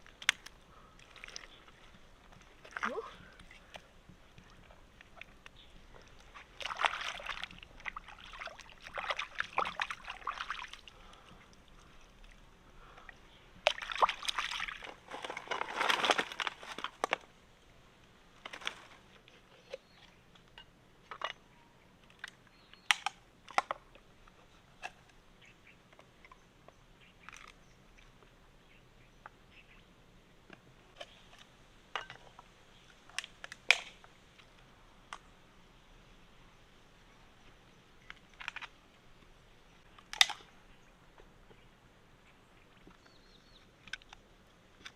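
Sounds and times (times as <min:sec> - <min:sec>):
water sloshing and splashing: 0:00.0 - 0:17.2.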